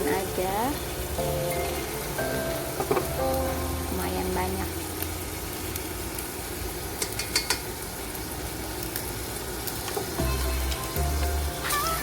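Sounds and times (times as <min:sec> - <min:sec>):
background music: 0:00.0 - 0:04.7, 0:10.2 - 0:12.0
sauce sizzling in a pot: 0:00.0 - 0:12.0
spoon clicking against pot: 0:07.0 - 0:07.7.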